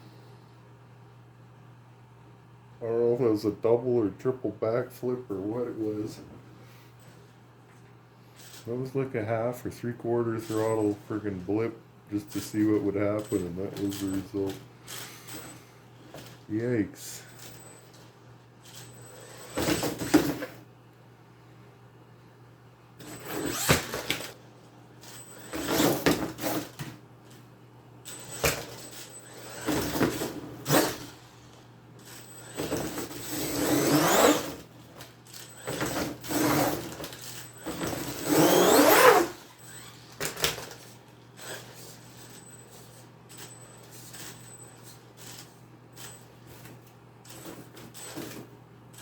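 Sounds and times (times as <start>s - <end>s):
electric motor whining: 38.1s - 40.1s.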